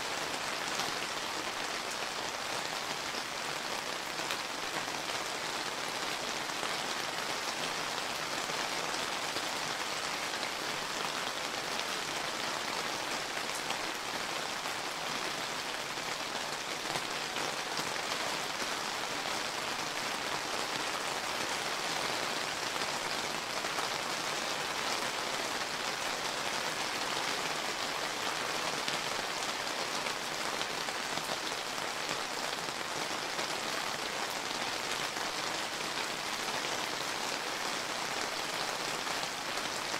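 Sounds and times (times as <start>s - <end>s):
rain pattering on ground: 0.0s - 39.9s.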